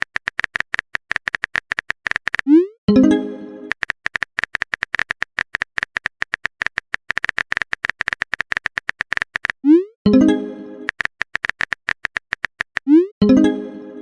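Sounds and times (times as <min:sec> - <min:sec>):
phone keyboard taps: 0:00.0 - 0:02.5, 0:03.7 - 0:09.6, 0:10.9 - 0:12.9.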